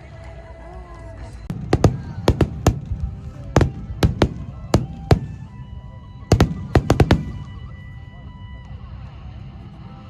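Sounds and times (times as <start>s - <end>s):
fireworks bursting: 1.5s - 7.8s.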